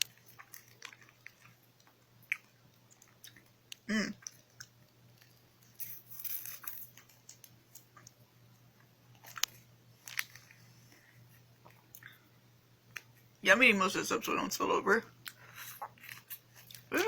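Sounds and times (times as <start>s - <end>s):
person chewing a snack: 0.0s - 8.2s, 8.8s - 12.3s, 15.2s - 17.0s.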